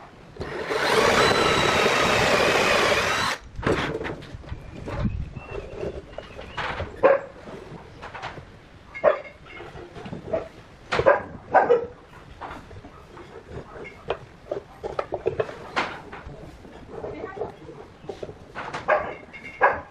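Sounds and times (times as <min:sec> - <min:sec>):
dog barking: 0:07.0 - 0:07.4, 0:09.0 - 0:09.4, 0:10.3 - 0:12.0, 0:18.8 - 0:19.9.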